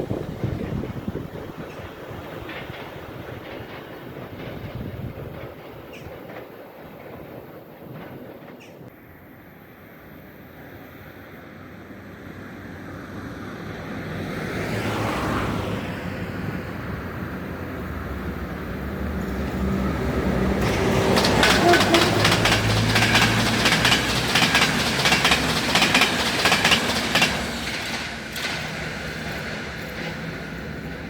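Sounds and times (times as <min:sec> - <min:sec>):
wheels clicking over rail joints: 0:00.0 - 0:08.9, 0:17.3 - 0:31.0
train passing: 0:00.0 - 0:31.0.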